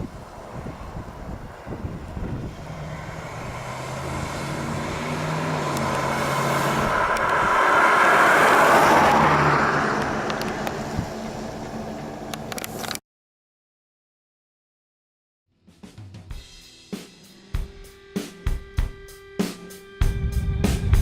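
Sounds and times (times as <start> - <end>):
car engine hum: 0.0 - 13.0.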